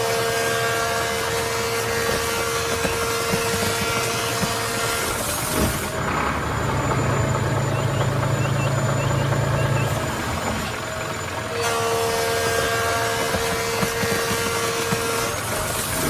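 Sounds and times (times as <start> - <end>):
vehicle engine running: 1.4 - 16.0
faint high chirps: 6.5 - 10.8.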